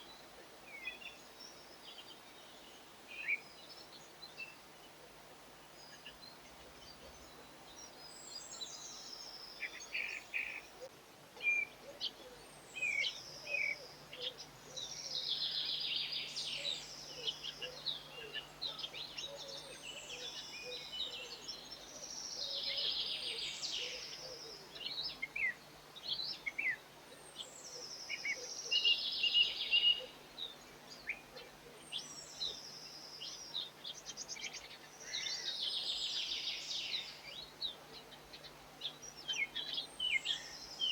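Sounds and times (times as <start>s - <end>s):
songbird singing trilled phrases: 12.7s - 40.9s.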